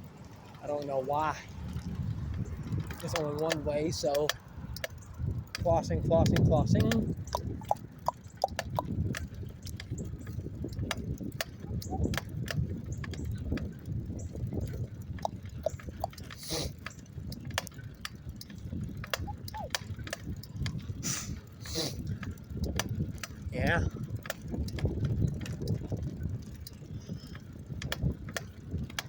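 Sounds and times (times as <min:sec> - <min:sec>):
bicycle riding rumble: 0:00.0 - 0:29.0
clicks and rattles: 0:01.8 - 0:21.0.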